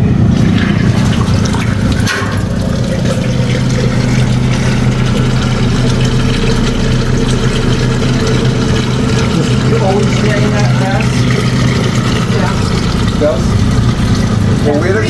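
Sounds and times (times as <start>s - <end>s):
low machine hum: 0.0s - 15.0s
water draining down a drain: 0.0s - 15.0s.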